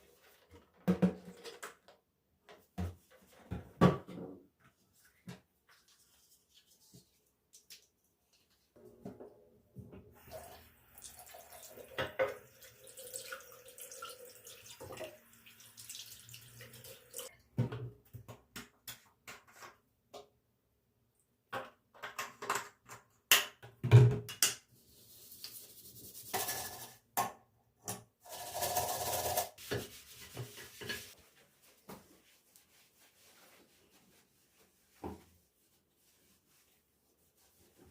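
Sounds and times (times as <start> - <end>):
tap water running into sink: 10.2 - 17.3.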